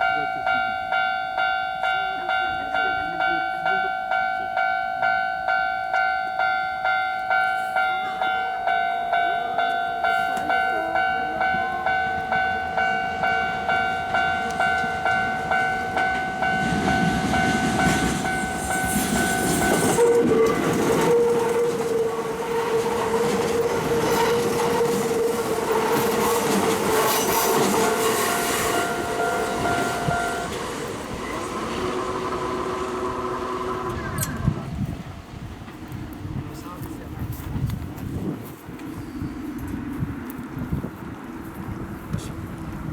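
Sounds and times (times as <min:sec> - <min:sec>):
level-crossing alarm ringing: 0:00.0 - 0:34.4
train wheels clicking over rail joints: 0:09.7 - 0:36.3.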